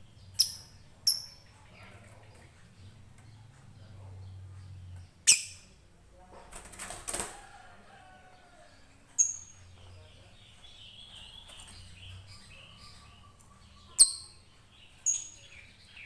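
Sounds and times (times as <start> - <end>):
lovebird shrill chirps: 5.2 - 5.7.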